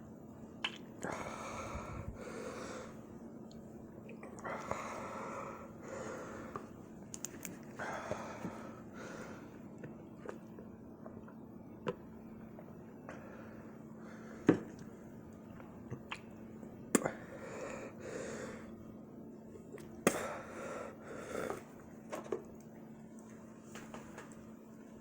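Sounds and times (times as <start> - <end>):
faint steady hum: 0.0 - 25.0
man breathing heavily: 1.0 - 3.0, 4.4 - 6.7, 7.8 - 9.6, 17.1 - 18.7.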